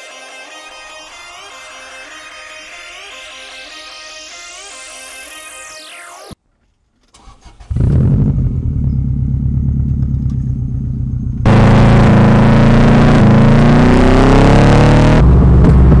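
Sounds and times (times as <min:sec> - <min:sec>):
engine cranking clicks: 0:07.0 - 0:07.8
car engine idling and revving: 0:07.6 - 0:16.0.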